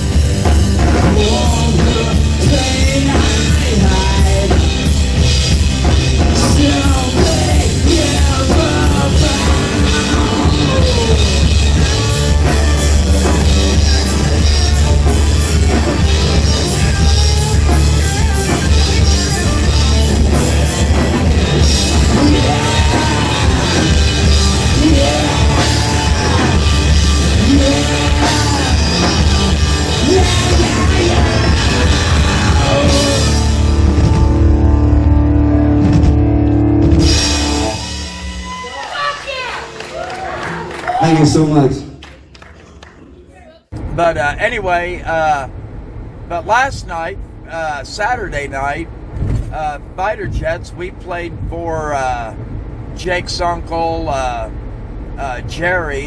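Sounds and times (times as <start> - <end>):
rock band playing: 0.0 - 41.9
cymbals: 5.1 - 34.0.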